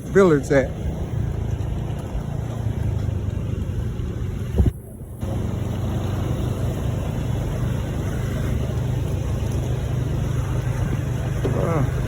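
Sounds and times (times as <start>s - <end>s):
motorbike engine running: 0.0s - 12.0s
wind rumble on microphone: 0.7s - 12.0s.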